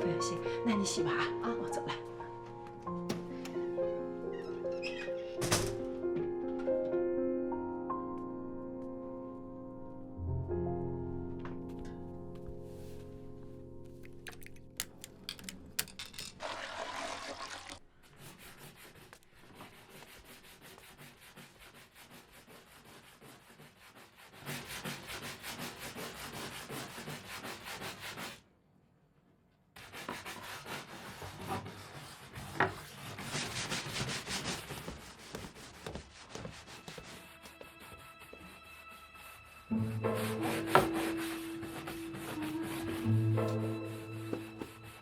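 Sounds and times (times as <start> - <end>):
stiff brush scrubbing: 29.8 - 45.0.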